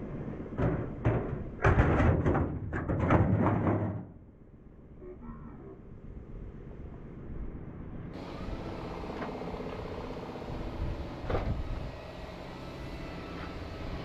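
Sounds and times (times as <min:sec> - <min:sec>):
motor running steadily: 0:08.2 - 0:14.0.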